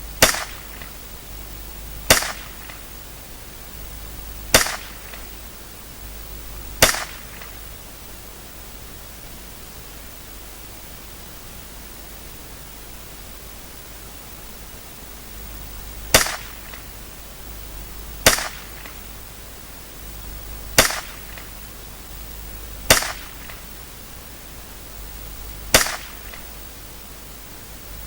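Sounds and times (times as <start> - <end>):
background hiss: 0.0 - 28.0
rifle shots: 0.2 - 1.0, 2.1 - 2.8, 4.5 - 5.4, 6.8 - 7.6, 16.1 - 16.8, 18.2 - 19.1, 20.7 - 21.6, 22.8 - 23.7, 25.7 - 26.5.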